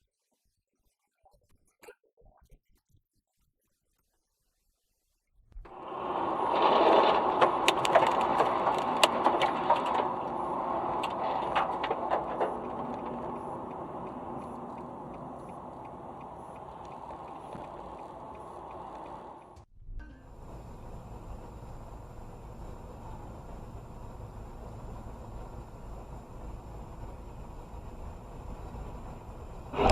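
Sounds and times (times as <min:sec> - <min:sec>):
sharp clicks and knocks: 0:05.7 - 0:19.7
car vehicle noise: 0:05.7 - 0:29.9.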